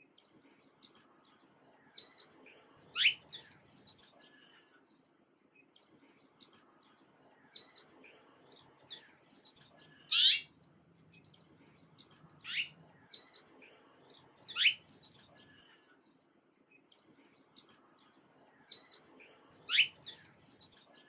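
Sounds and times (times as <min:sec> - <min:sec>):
loud downward-sweeping bird calls: 0:10.1 - 0:10.5, 0:12.5 - 0:12.7
soft short bird chirps: 0:10.1 - 0:10.5, 0:12.4 - 0:13.3, 0:14.5 - 0:14.9.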